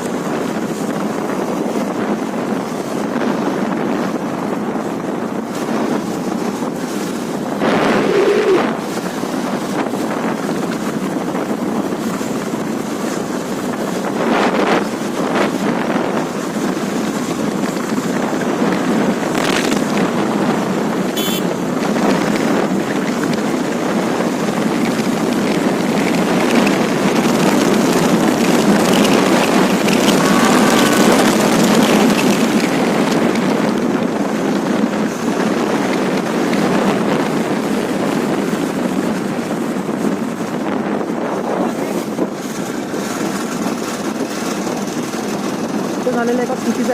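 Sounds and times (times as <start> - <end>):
road and engine noise: 0.0 - 46.9
wind buffeting microphone: 0.0 - 46.9.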